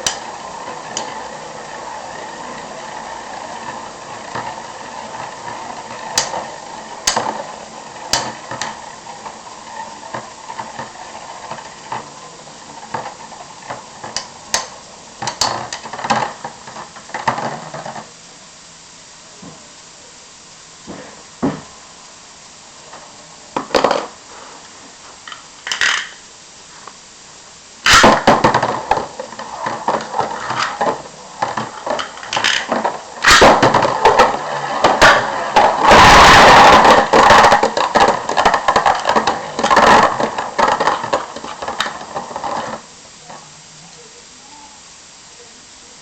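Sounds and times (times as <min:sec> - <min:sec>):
spinning tops clashing and rattling: 0:25.3 - 0:26.2, 0:27.8 - 0:42.8.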